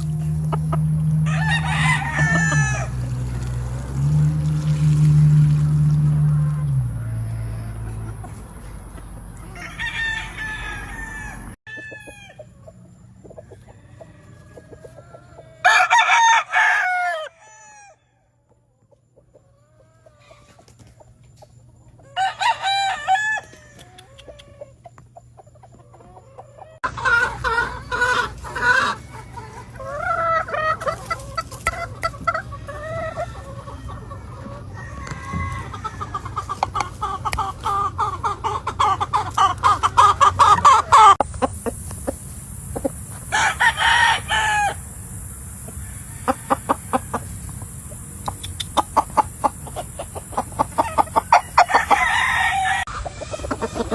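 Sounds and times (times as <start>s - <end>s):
birds clucking: 0.0s - 16.3s, 23.6s - 53.9s
rooster crowing: 1.2s - 3.0s, 9.4s - 12.4s, 13.6s - 18.4s, 22.1s - 24.5s, 32.8s - 36.3s, 43.3s - 44.9s, 45.7s - 47.5s, 50.8s - 53.9s.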